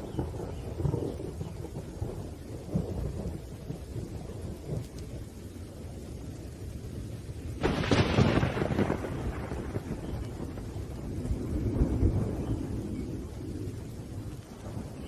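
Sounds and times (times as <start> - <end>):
low rumbling thunder: 0.0 - 15.0
rain: 0.0 - 15.0
loud thunderclap: 7.5 - 15.0.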